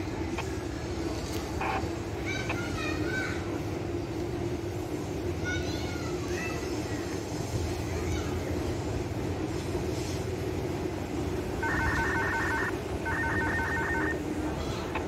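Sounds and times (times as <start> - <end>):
electric train rumbling: 0.0 - 15.0
rapid electronic beeping: 11.6 - 14.2.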